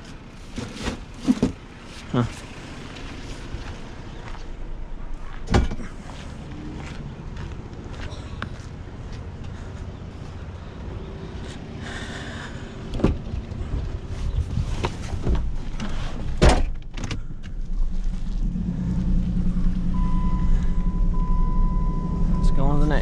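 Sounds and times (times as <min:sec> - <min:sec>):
vehicle engine running: 0:00.0 - 0:16.4, 0:17.2 - 0:23.0
steady high tone: 0:19.9 - 0:23.0.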